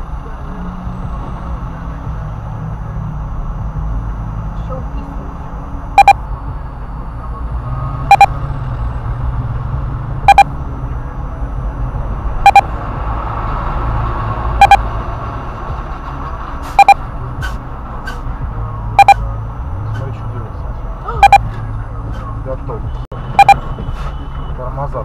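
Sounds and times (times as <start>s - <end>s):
engine and traffic hum: 0.0s - 25.0s
electronic beeper double beeps: 6.0s - 6.3s, 8.0s - 8.4s, 10.3s - 10.6s, 12.4s - 12.7s, 14.6s - 14.8s, 16.8s - 17.0s, 19.0s - 19.2s, 21.2s - 21.5s, 23.4s - 23.6s.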